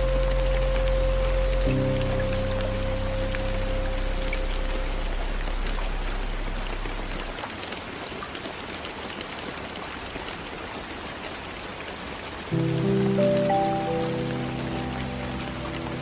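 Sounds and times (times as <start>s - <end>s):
low held music tones: 0.0s - 7.5s, 12.5s - 16.0s
soft rain on a window: 0.0s - 16.0s.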